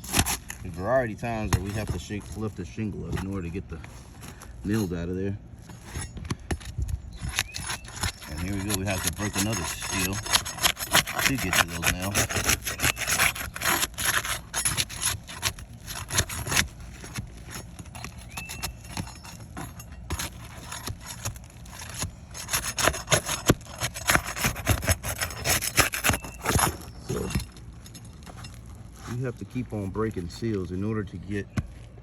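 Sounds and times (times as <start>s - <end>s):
tool scraping shingles: 0.0s - 32.0s
short squeak: 7.0s - 27.6s.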